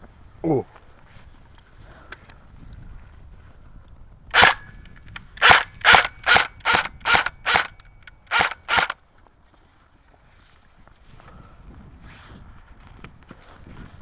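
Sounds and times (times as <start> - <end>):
airsoft gun shots: 4.3 - 4.7, 5.4 - 9.0.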